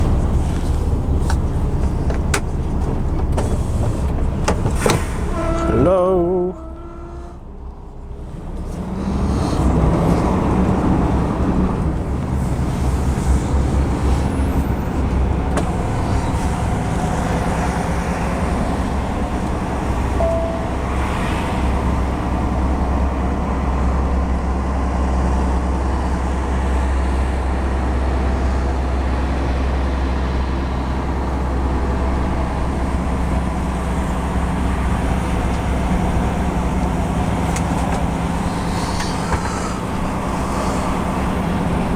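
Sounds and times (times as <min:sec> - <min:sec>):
lorry diesel engine running: 0:00.0 - 0:41.9
road noise: 0:00.0 - 0:41.9
short beep: 0:20.2 - 0:20.9.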